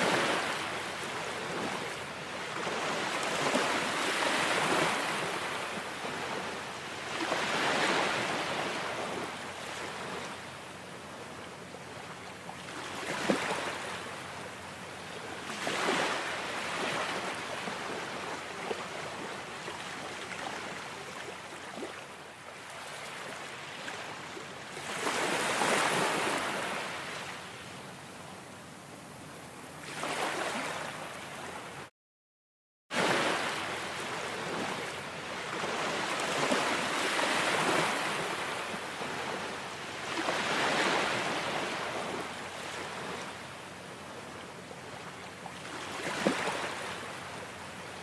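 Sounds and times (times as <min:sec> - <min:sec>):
waves breaking: 0:00.0 - 0:10.4, 0:12.6 - 0:14.2, 0:15.4 - 0:22.0, 0:24.8 - 0:27.4, 0:29.8 - 0:31.8, 0:32.9 - 0:44.4, 0:45.5 - 0:47.6.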